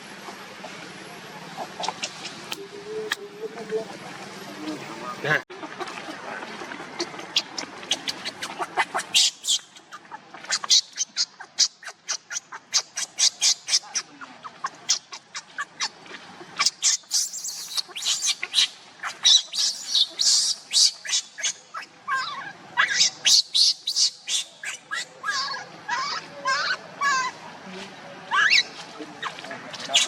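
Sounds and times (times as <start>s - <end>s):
animal squeaks and chirps: 7.2s - 9.8s, 10.5s - 15.9s, 16.6s - 27.3s, 28.3s - 30.0s
falling animal calls: 16.6s - 27.4s, 28.3s - 30.0s.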